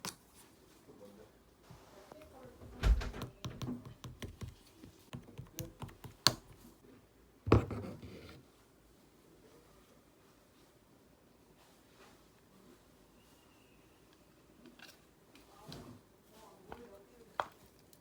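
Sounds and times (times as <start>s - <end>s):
slime clicking and tapping: 3.2s - 6.6s.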